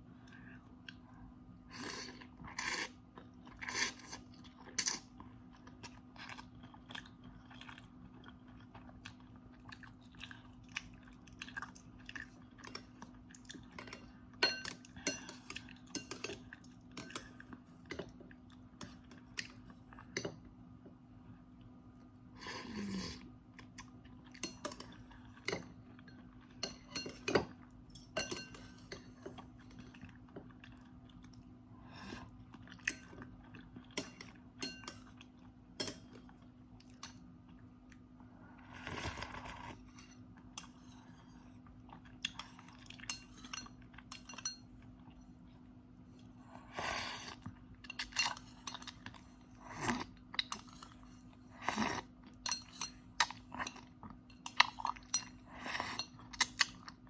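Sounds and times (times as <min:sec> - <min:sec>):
person chewing: 0:01.8 - 0:13.8, 0:32.2 - 0:34.4, 0:47.0 - 0:57.0
utensils clinking against bowl: 0:24.4 - 0:29.8, 0:52.4 - 0:55.4.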